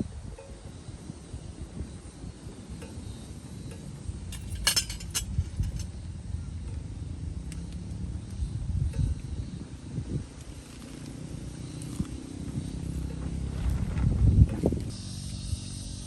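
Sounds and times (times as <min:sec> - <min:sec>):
steady low rumble: 0:00.0 - 0:16.0
light metallic clinks and jingling: 0:03.7 - 0:06.0.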